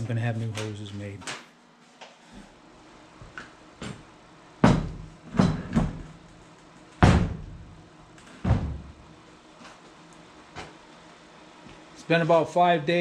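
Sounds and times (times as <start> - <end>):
sharp knocks and thuds: 4.6 - 6.1, 7.0 - 7.7, 8.4 - 9.0.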